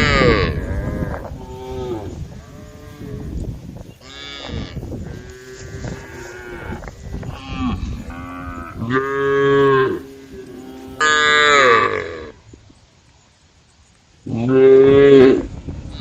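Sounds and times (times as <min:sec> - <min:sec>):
cattle mooing: 0:00.0 - 0:03.4, 0:04.0 - 0:12.4.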